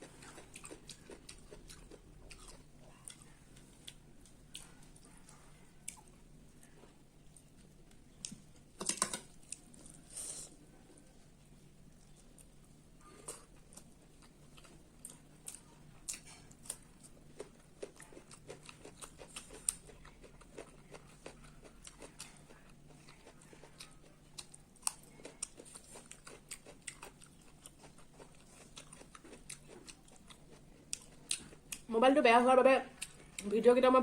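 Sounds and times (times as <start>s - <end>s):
person chewing: 0.0s - 11.2s, 11.9s - 31.9s, 33.0s - 33.5s.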